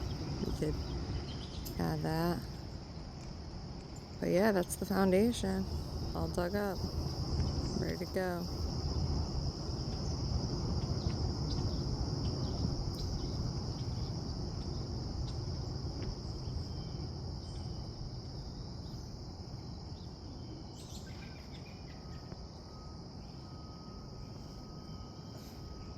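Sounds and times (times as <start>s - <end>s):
insects chirping: 0.0s - 25.9s.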